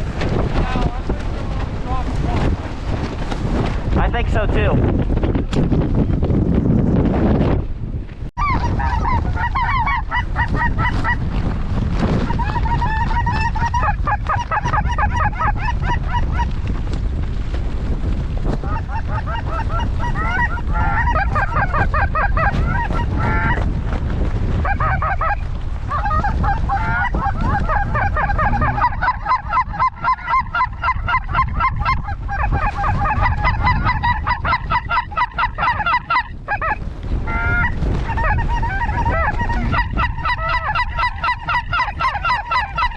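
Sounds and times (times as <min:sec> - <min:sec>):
wind rumble on microphone: 0:00.0 - 0:42.9
snow geese honking: 0:08.4 - 0:11.2, 0:12.3 - 0:16.5, 0:18.6 - 0:23.6, 0:24.6 - 0:42.9.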